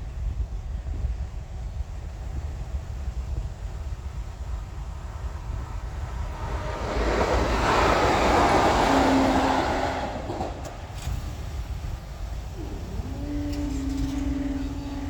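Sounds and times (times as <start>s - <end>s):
vehicle passing by: 4.7s - 11.5s, 12.4s - 15.0s.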